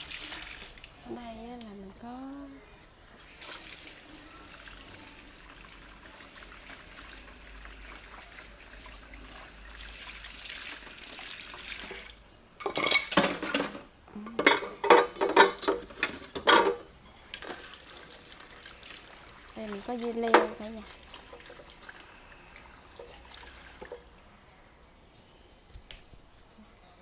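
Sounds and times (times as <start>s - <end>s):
kitchen tap running: 0.0s - 1.8s, 3.2s - 24.2s
dishes and utensils clattering: 12.6s - 17.7s, 20.3s - 21.6s.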